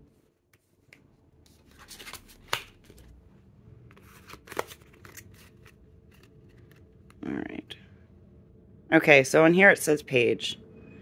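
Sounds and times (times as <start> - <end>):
cards and pages rustling: 0.2 - 7.2.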